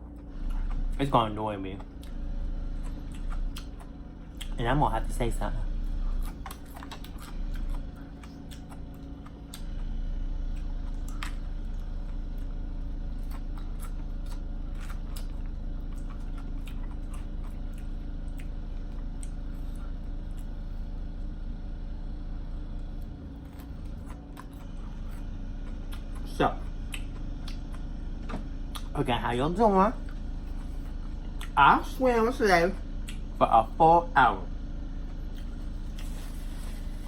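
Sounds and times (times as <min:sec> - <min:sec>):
person chewing fried food: 0:00.0 - 0:01.0, 0:01.7 - 0:04.6, 0:05.8 - 0:21.4, 0:22.8 - 0:28.9, 0:29.9 - 0:31.6, 0:34.9 - 0:37.0
low rumble of building work: 0:00.0 - 0:37.0.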